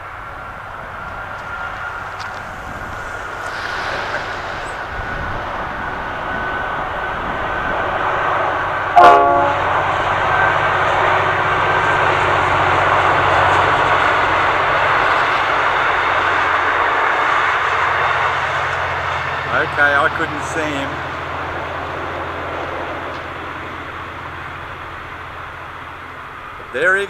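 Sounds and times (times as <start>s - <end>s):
train rumbling past: 0.0s - 27.0s
train horn blast: 8.9s - 9.8s.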